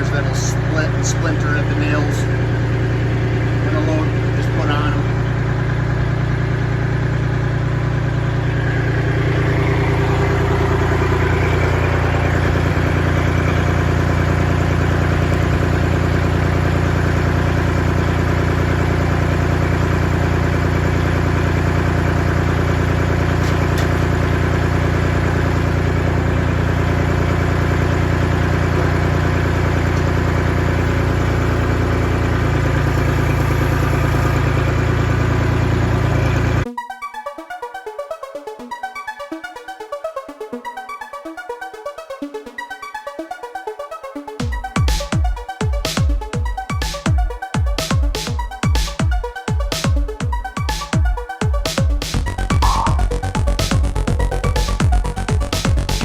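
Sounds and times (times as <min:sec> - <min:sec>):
tractor engine idling: 0:00.0 - 0:36.7, 0:44.7 - 0:56.0.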